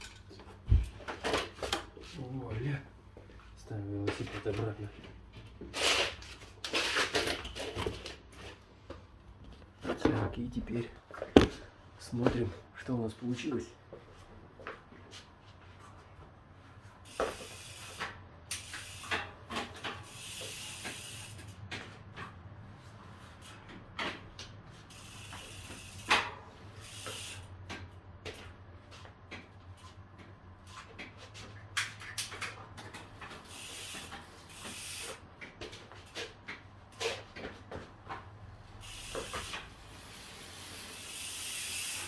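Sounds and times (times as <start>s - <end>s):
bike hub ratcheting clicks: 17.0s - 21.6s, 23.4s - 28.4s, 31.7s - 36.3s, 38.8s - 42.0s
brake pads hissing on rotor: 17.1s - 21.6s, 24.8s - 27.5s, 33.4s - 35.2s, 38.7s - 42.0s.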